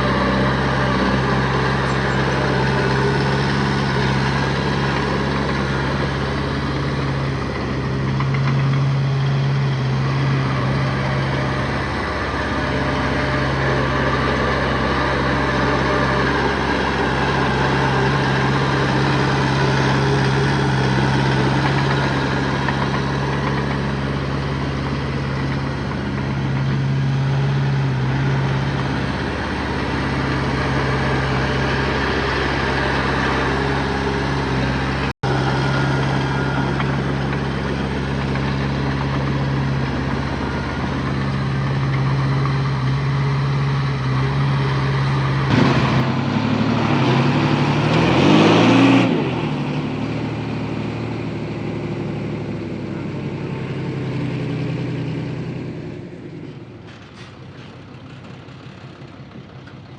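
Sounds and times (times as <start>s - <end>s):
heavy machinery diesel engine: 0.0s - 59.9s.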